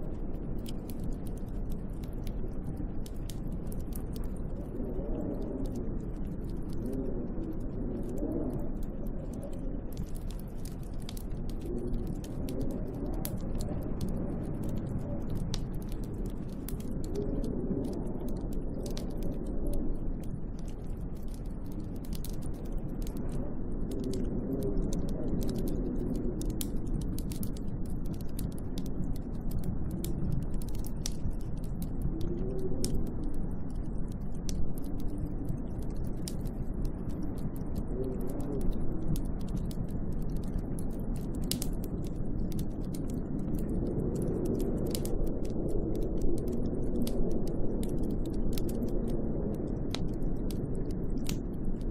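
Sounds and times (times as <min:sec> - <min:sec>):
small sharp ticks and clicks: 0:00.0 - 0:51.9
snowstorm wind gusting: 0:00.0 - 0:51.9.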